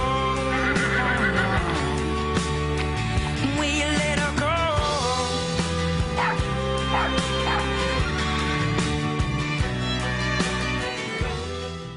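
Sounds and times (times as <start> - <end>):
background music: 0.0 - 11.9
puppy yelping: 6.2 - 7.7.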